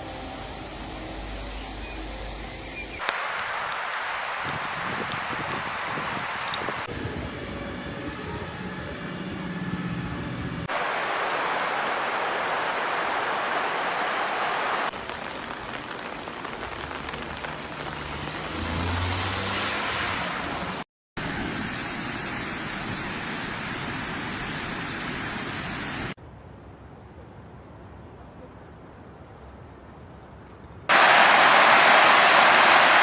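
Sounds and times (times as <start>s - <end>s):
floodwater rushing: 3.0s - 6.9s, 10.7s - 26.2s, 30.9s - 33.0s.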